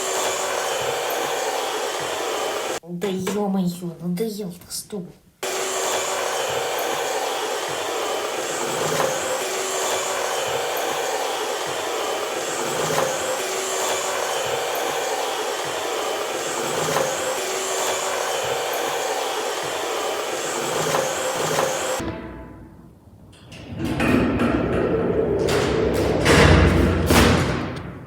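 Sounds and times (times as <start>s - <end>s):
vacuum cleaner motor whirring: 0.0s - 2.8s, 5.4s - 22.0s.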